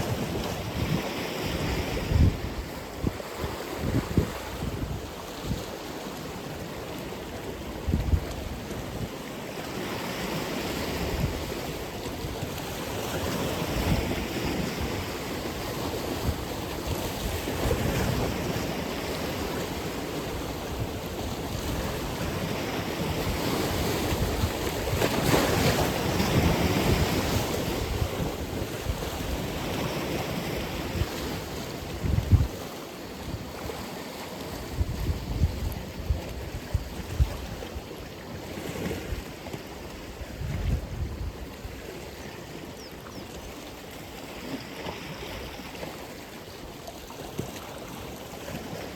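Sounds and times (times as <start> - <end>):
wind buffeting microphone: 0.0 - 5.7, 20.6 - 33.7, 34.6 - 37.7, 40.0 - 41.9
waves breaking and washing ashore: 0.0 - 48.9.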